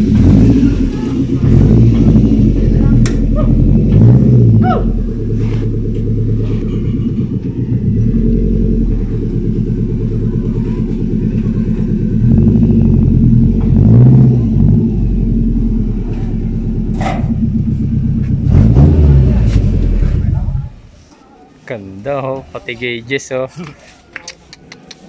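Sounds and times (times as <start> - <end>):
car engine idling and revving: 0.0 - 20.9.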